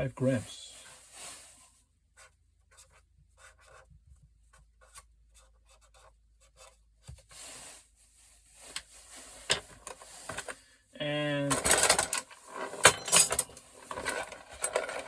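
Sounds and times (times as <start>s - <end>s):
scrap pieces scratching and rubbing: 13.8s - 15.0s.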